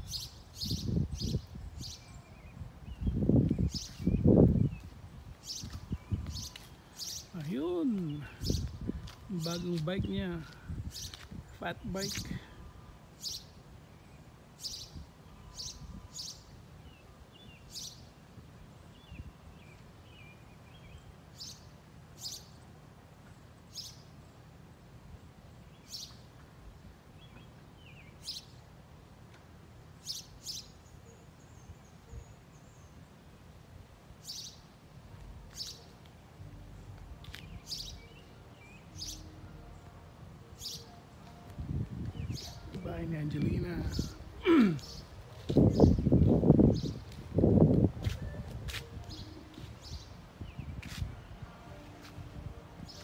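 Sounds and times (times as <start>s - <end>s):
bird chirping: 36.8s - 47.2s.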